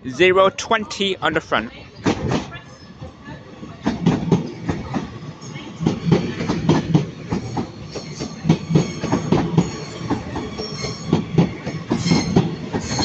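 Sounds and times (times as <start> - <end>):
train wheels clattering over rail joints: 3.8 - 13.0
high wheel squeal: 7.4 - 13.0.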